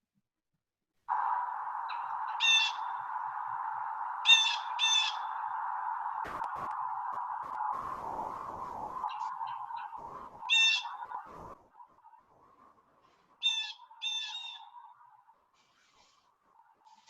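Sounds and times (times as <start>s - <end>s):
faint steady hum: 1.0s - 17.0s
harsh scolding bird calls: 1.9s - 3.3s, 4.2s - 5.6s, 9.0s - 12.2s, 13.1s - 16.2s.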